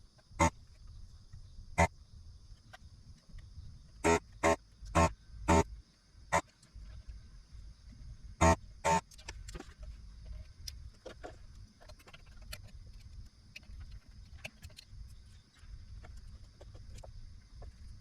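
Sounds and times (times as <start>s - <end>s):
small irregular clicks and taps: 8.9s - 18.0s.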